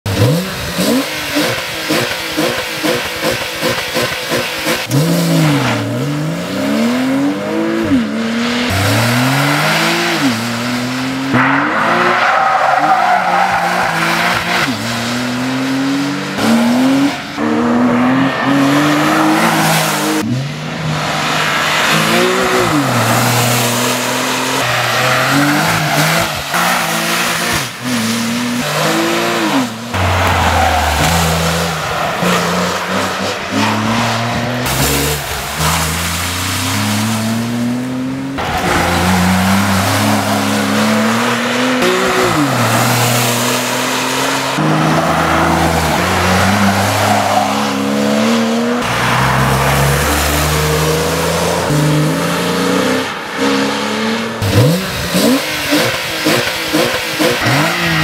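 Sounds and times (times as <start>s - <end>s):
sports car engine revving: 14.2s - 58.0s.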